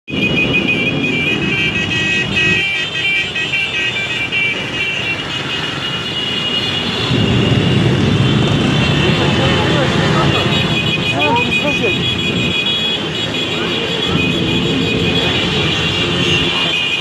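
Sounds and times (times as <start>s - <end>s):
road noise: 0.1s - 17.0s
motorcycle engine rumbling: 6.6s - 17.0s
music playing: 7.1s - 16.8s.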